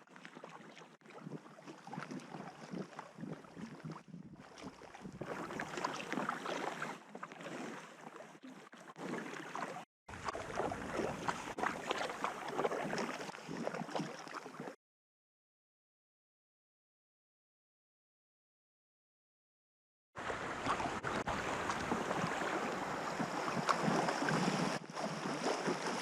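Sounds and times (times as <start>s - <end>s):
water splashing around raft: 0.0s - 14.8s, 20.2s - 26.0s
wind rumbling on microphone: 2.2s - 5.8s, 10.1s - 12.0s, 20.2s - 26.0s.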